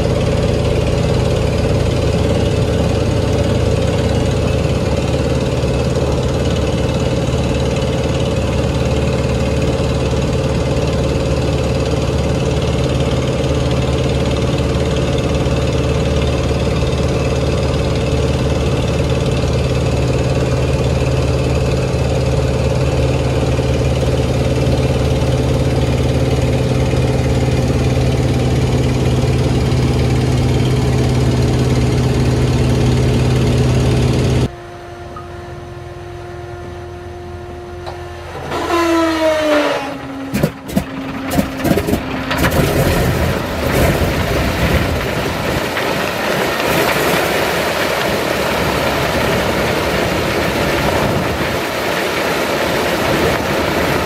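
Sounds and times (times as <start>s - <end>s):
radial aircraft engine running: 0.0s - 54.0s
starter whine: 0.0s - 54.0s
engine firing bangs: 38.3s - 49.8s.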